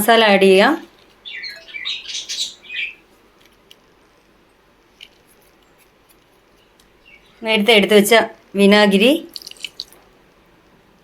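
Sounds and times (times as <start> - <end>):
small bird chirping: 1.2 - 3.1, 6.5 - 7.4.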